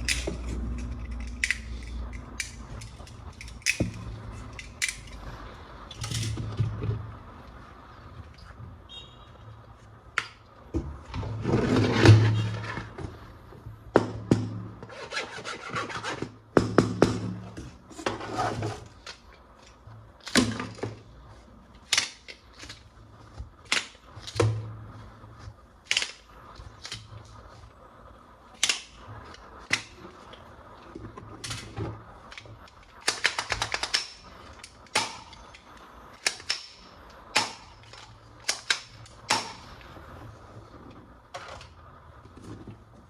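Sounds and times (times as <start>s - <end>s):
plastic toy parts clicking: 0.0s - 6.5s, 21.8s - 22.9s, 23.6s - 24.4s, 25.8s - 27.4s, 28.6s - 30.0s, 31.4s - 39.8s.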